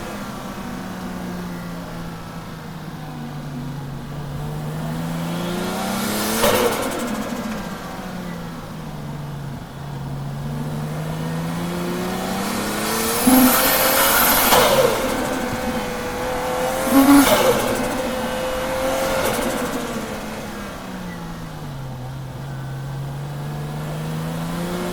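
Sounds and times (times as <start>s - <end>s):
car engine under hard throttle: 0.0s - 24.9s
loud engine bursts: 10.3s - 22.8s
tyre squeal: 12.8s - 20.0s.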